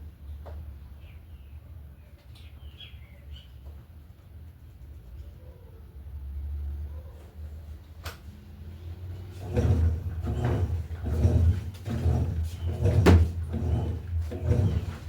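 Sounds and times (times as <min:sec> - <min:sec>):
low motor hum: 0:08.5 - 0:15.0
washing machine agitator swishing: 0:09.0 - 0:15.0.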